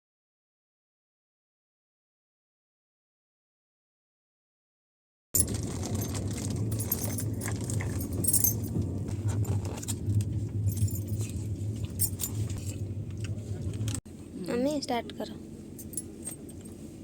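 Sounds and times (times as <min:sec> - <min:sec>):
light metallic rattling: 0:05.4 - 0:12.8, 0:15.8 - 0:16.7
train coach rumbling: 0:05.4 - 0:17.0.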